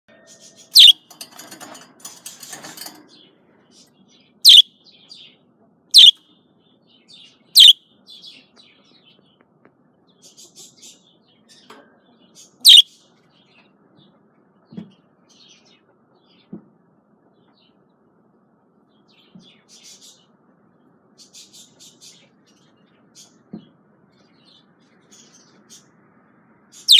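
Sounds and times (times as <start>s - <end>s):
budgerigar chirps: 0.8s - 1.0s, 4.5s - 4.7s, 6.0s - 6.2s, 7.6s - 7.8s, 12.6s - 12.9s
budgerigar soft chattering: 0.8s - 1.0s, 6.0s - 6.2s, 7.6s - 7.8s.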